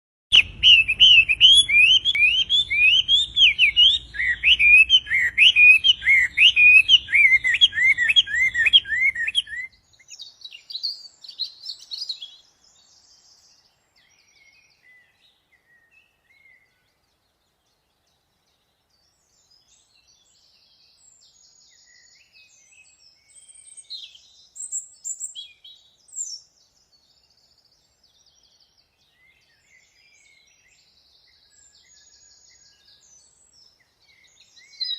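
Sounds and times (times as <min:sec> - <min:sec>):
high bird chirps: 0:00.3 - 0:13.4, 0:31.3 - 0:34.9
songbird whistling: 0:00.3 - 0:16.8, 0:34.1 - 0:34.9.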